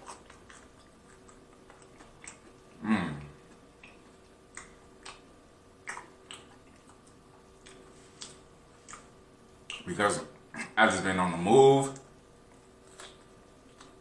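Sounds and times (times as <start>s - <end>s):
chewing with wet clicks and smacks: 0.0s - 10.8s, 11.9s - 14.0s.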